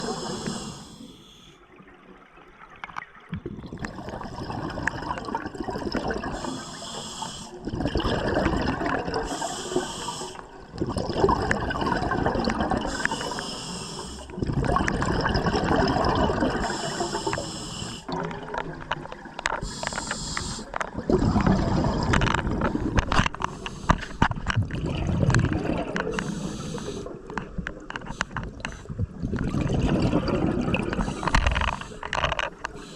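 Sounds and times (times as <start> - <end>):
gurgling exhaled bubbles: 0.0 - 0.8, 3.3 - 6.9, 7.6 - 13.4, 14.2 - 17.4, 18.0 - 19.6, 20.7 - 23.5, 24.2 - 32.6
regulator hissing inhale: 0.0 - 1.6, 6.4 - 7.6, 9.2 - 10.5, 12.9 - 14.4, 16.6 - 18.1, 19.6 - 20.8, 23.4 - 24.3, 26.1 - 27.3, 31.0 - 32.9.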